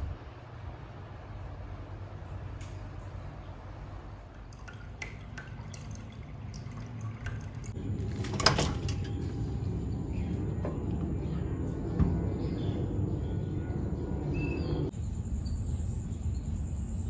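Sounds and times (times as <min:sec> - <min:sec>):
low steady hum: 0:00.0 - 0:17.0
water dripping: 0:04.3 - 0:07.8.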